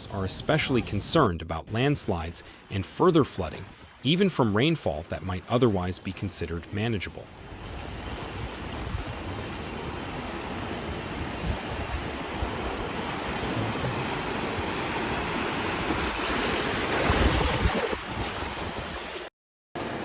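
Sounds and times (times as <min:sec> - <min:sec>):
wind buffeting microphone: 0:07.5 - 0:16.2
heavy rain: 0:10.8 - 0:16.0.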